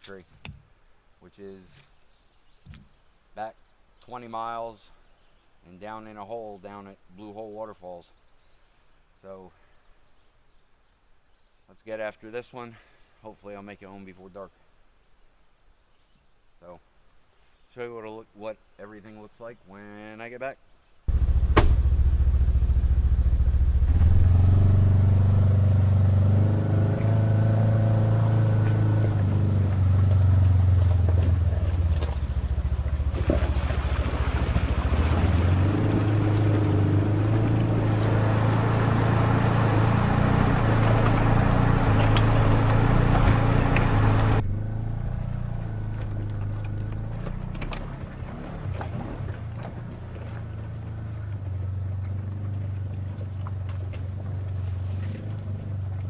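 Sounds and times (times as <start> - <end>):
engine running: 21.1 - 56.0.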